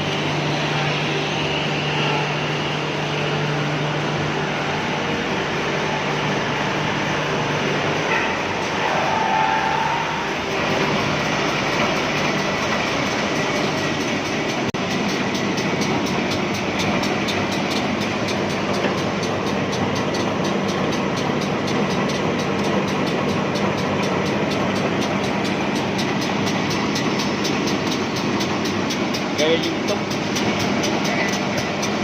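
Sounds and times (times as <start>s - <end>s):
woodworking machine running: 0.0s - 32.0s
fast even ticking: 11.2s - 32.0s.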